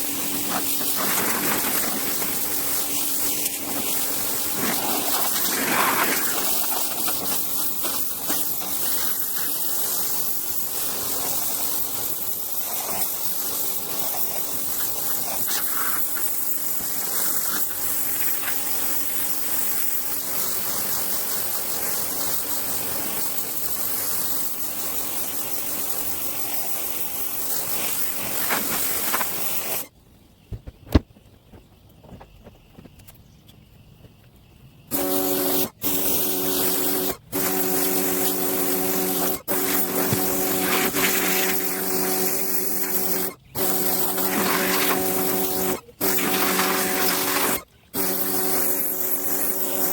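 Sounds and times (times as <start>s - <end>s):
pressure washer spraying: 0.0s - 29.9s, 34.9s - 49.9s
motor hum: 34.9s - 49.9s.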